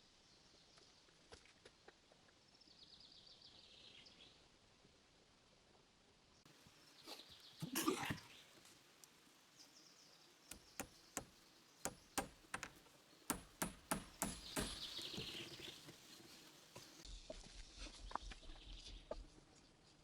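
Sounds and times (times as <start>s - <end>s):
hammer knocking on timber: 10.5s - 11.3s, 11.9s - 15.4s.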